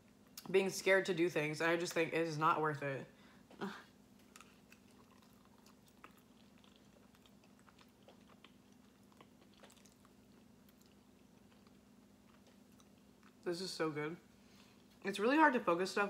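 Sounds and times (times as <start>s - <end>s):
steady low hum: 0.0s - 16.0s
chewing and biting tortilla: 4.1s - 13.4s.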